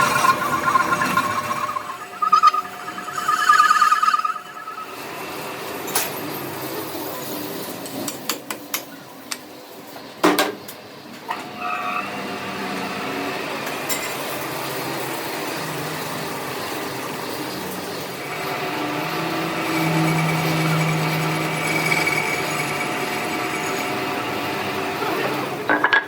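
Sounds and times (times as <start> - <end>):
steady machine with faint whine: 0.0 - 6.6.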